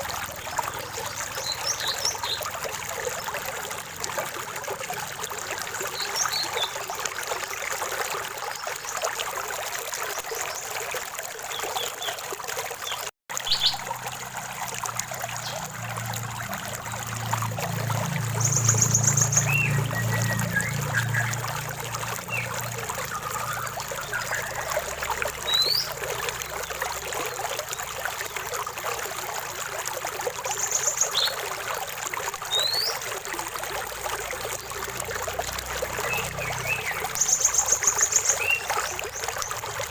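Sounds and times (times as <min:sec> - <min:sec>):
stream water trickling: 0:00.0 - 0:39.9
small birds whistling and trilling: 0:00.4 - 0:02.5, 0:18.3 - 0:21.6, 0:22.2 - 0:24.8, 0:25.4 - 0:26.7, 0:32.5 - 0:33.0, 0:36.0 - 0:39.6.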